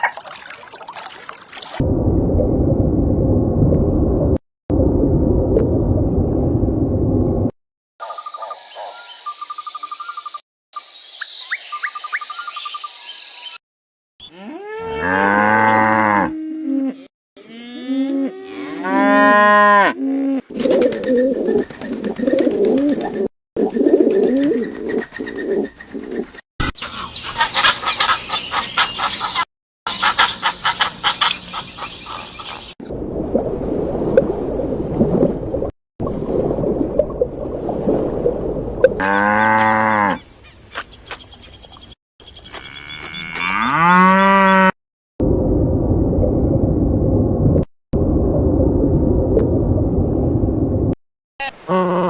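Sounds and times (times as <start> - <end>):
bird chirps: 8.0 - 13.6, 40.2 - 43.3
cow mooing: 14.3 - 20.4, 39.0 - 40.2, 42.6 - 44.7
barnyard noise: 26.8 - 32.7, 42.4 - 44.7.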